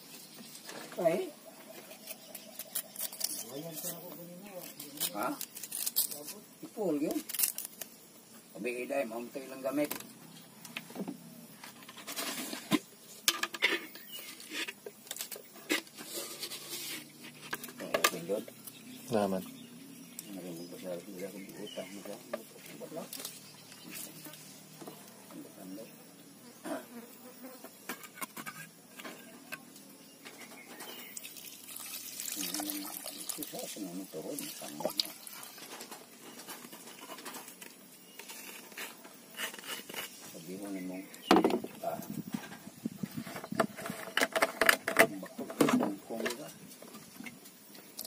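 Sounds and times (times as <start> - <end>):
liquid pouring and splashing: 31.0 - 35.9.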